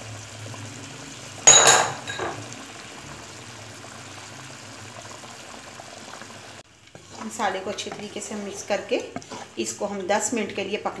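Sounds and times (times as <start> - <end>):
fish frying in oil: 0.0 - 9.6
utensil clinking on metal: 1.5 - 2.4.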